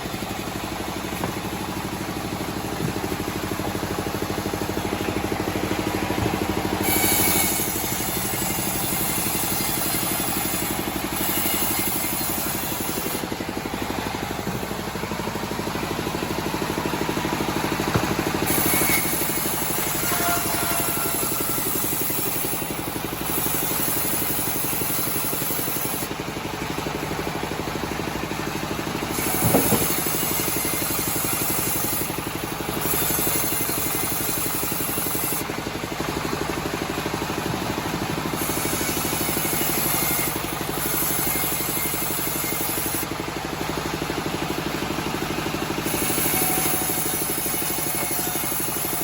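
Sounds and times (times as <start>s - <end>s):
blade sawing through wood: 0.0s - 35.6s, 36.6s - 49.0s
band sawmill droning: 0.0s - 49.0s
thump: 17.9s - 18.3s, 29.4s - 29.9s.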